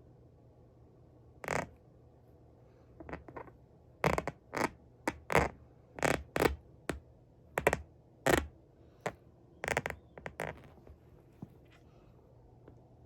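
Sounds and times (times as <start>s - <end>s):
shoes creaking and scuffing: 9.7s - 11.9s.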